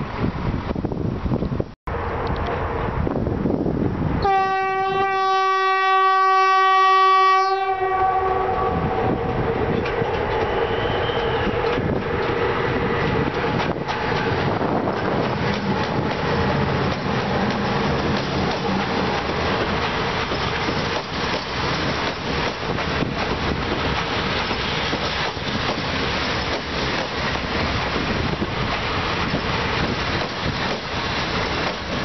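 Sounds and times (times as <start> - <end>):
train rolling past on rails: 0.0 - 32.0
locomotive horn blast: 4.2 - 9.4.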